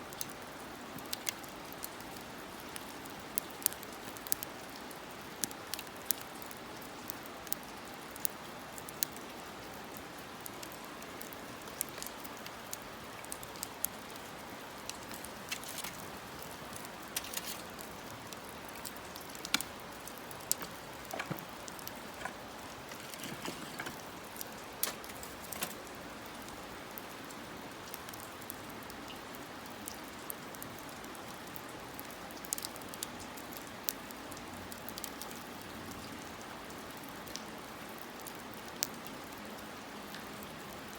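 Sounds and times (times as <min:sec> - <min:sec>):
wood fire crackling: 0:01.0 - 0:28.7, 0:38.2 - 0:38.8.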